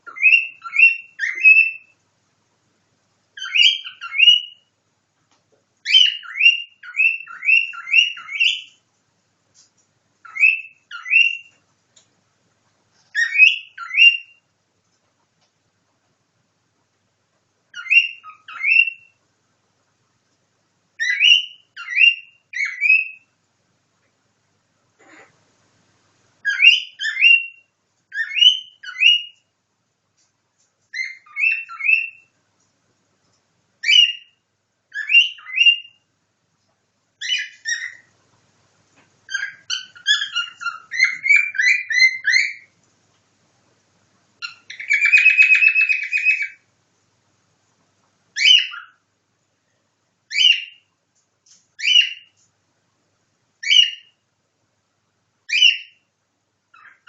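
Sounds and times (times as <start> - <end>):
bird whistling and chirping: 0.0 - 1.9, 3.4 - 4.7, 5.8 - 8.8, 10.2 - 11.6, 13.1 - 14.4, 17.7 - 19.2, 21.0 - 23.3, 26.4 - 29.4, 30.9 - 32.3, 33.8 - 36.0, 37.2 - 38.1, 39.3 - 42.7, 44.4 - 46.6, 48.4 - 49.0, 50.3 - 50.8, 51.8 - 52.4, 53.6 - 54.1, 55.5 - 56.0, 56.7 - 57.0.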